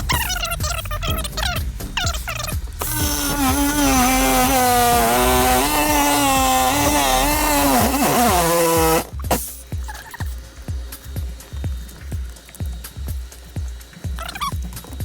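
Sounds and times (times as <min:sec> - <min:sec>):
jigsaw cutting metal: 0:02.8 - 0:09.5.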